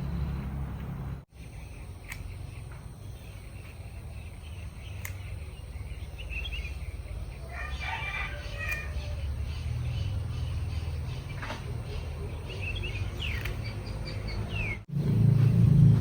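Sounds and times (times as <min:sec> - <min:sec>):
birds chirping: 0:00.0 - 0:16.0
sharp clicks: 0:02.0 - 0:02.3, 0:05.0 - 0:05.3, 0:13.3 - 0:13.7.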